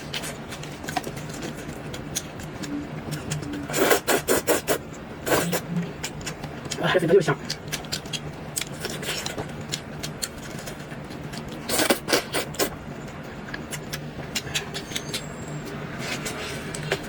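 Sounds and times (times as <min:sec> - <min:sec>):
faint steady hum: 0:00.0 - 0:17.0
chewing with mouth smacks: 0:07.4 - 0:12.7.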